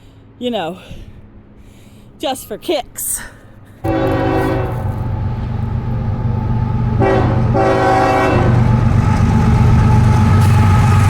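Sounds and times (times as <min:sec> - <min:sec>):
train rumbling: 0:00.0 - 0:11.0
train horn blasts: 0:03.8 - 0:06.0, 0:06.6 - 0:11.0.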